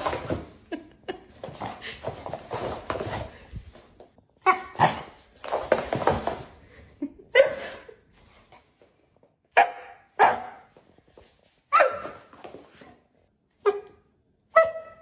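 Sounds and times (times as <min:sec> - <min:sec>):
dog barking: 0:09.6 - 0:10.7.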